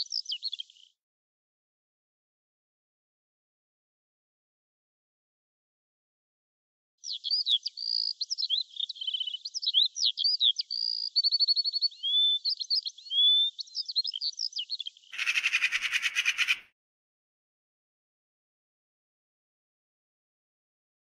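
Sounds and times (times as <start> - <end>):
songbird singing: 0.0 - 1.0, 7.0 - 16.6
harsh pulsing bird call: 15.2 - 16.7.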